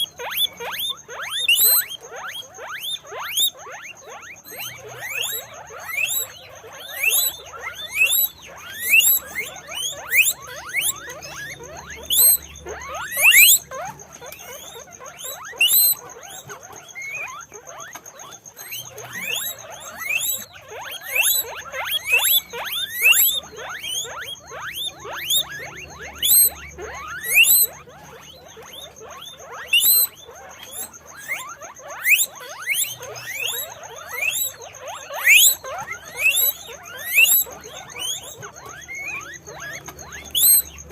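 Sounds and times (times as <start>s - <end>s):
guinea pigs squeaking: 0.0s - 40.9s.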